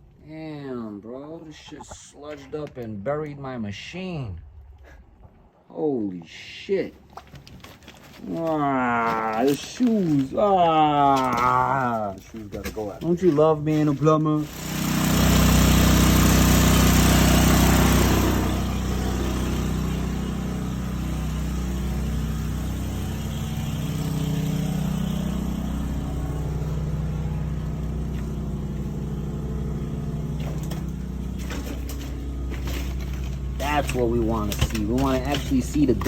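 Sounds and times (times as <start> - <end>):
water jetter engine running: 8.2 - 36.0.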